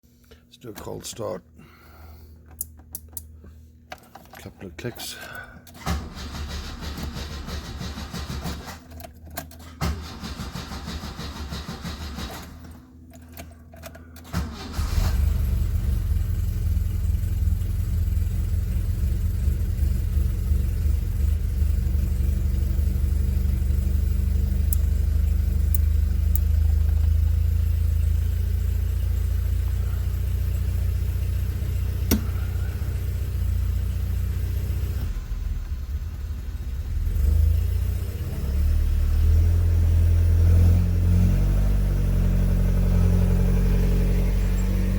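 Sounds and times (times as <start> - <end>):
starter motor cranking: 5.7 - 8.9, 9.6 - 12.8, 14.2 - 15.5
car engine idling: 14.2 - 38.0, 42.2 - 44.9.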